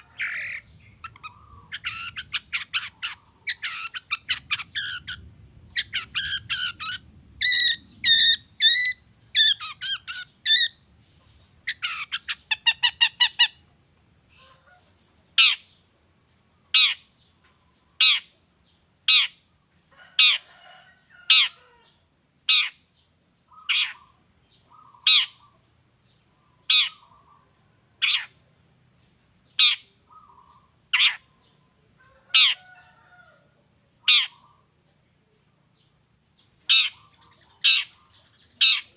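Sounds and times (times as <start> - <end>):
shrike chattering and calling: 0.0 - 13.8, 15.3 - 15.7, 16.7 - 17.2, 17.9 - 18.4, 19.0 - 19.5, 20.2 - 22.9, 23.5 - 25.6, 26.4 - 28.4, 29.5 - 33.0, 34.0 - 34.7, 35.8 - 38.9.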